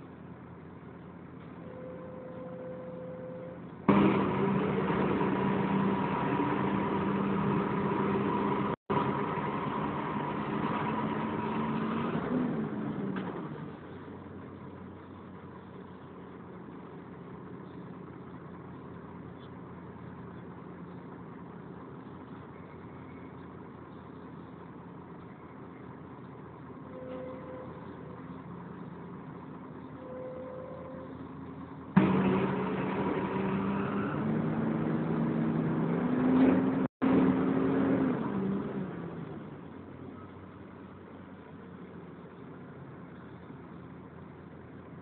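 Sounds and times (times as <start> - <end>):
bus engine running: 0.0 - 45.0.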